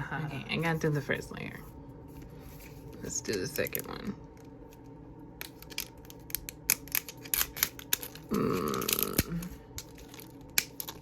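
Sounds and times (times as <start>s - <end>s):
plastic packaging crackling: 5.5s - 11.0s.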